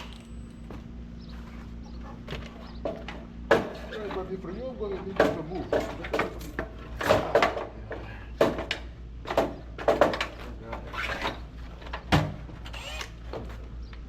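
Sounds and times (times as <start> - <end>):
low steady hum: 0.0 - 9.8
knocks and clunks: 5.0 - 10.8.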